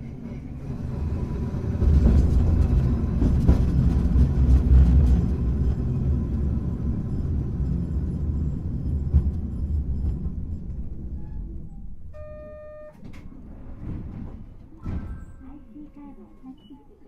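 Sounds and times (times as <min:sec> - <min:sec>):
tram wheels and motors rumbling: 0:00.0 - 0:17.0
short electronic beep: 0:12.2 - 0:13.0.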